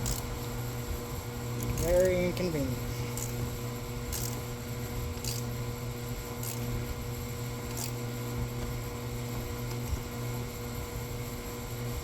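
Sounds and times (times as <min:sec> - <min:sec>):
hand ratchet clicking: 0:00.0 - 0:00.3, 0:01.6 - 0:02.2, 0:03.1 - 0:03.4, 0:04.1 - 0:04.5, 0:05.2 - 0:05.5, 0:06.4 - 0:06.7, 0:07.7 - 0:08.0
low electrical hum: 0:00.0 - 0:12.0.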